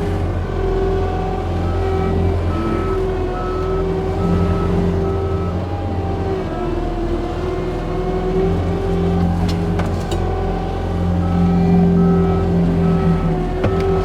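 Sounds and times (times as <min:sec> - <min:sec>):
diesel engine under load: 0:00.0 - 0:14.0
reverse alarm beeping: 0:01.6 - 0:05.7, 0:11.2 - 0:14.0.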